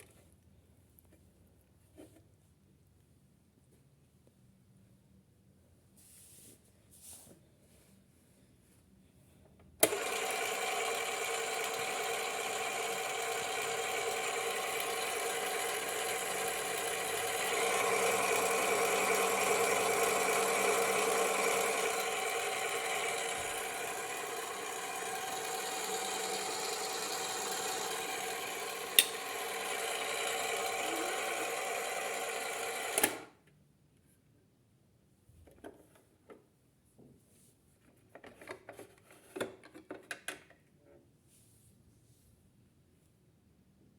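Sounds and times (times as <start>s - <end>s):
small electric motor whirring: 9.8s - 33.3s.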